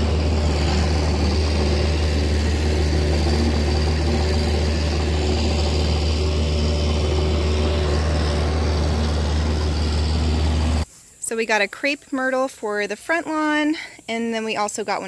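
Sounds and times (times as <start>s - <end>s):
engine idling: 0.0s - 10.8s.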